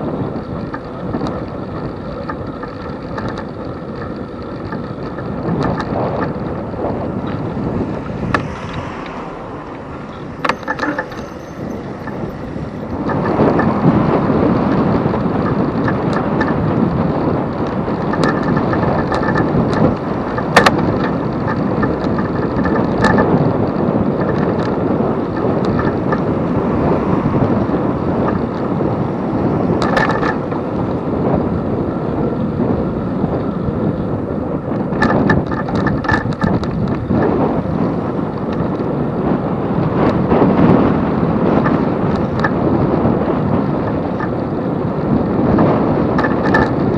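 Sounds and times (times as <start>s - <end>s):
bike clicks and rattles: 0.0s - 46.9s
tyres humming on road: 0.0s - 46.9s
wind buffeting microphone: 0.0s - 46.9s.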